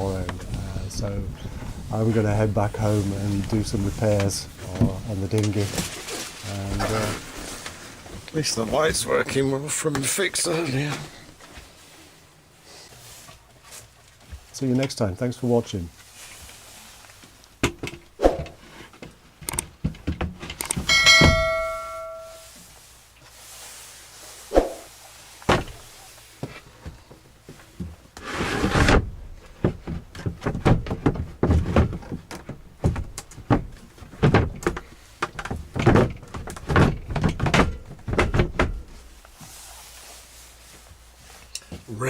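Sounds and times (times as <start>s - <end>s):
knocks and thuds: 19.8s - 22.3s, 25.5s - 25.8s, 28.9s - 39.0s
struck metal ringing: 20.9s - 22.5s.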